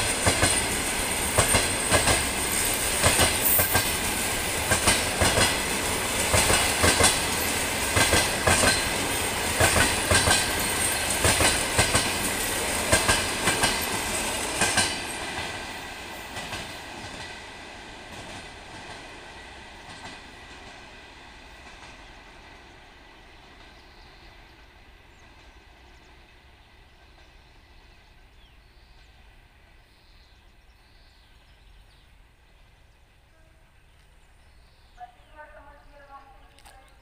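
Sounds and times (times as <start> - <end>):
train wheels knocking over rail joints: 0.0 - 15.7.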